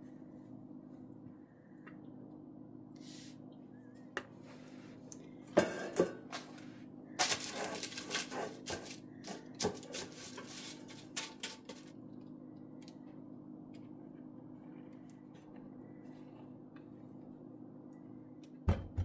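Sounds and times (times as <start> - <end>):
steady low hum: 0.0 - 19.0
dishes and utensils clattering: 5.5 - 6.6, 7.2 - 11.9.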